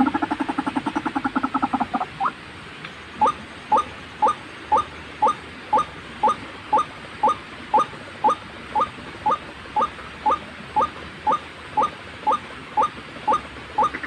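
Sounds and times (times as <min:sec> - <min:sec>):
waterhen calling: 0:00.0 - 0:02.4, 0:03.2 - 0:14.0.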